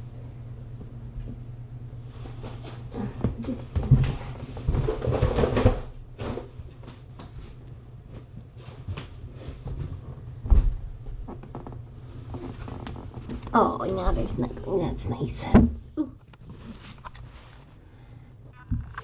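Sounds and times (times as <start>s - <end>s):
steady low hum: 0.0s - 19.0s
rustling and soft knocks: 2.1s - 14.7s.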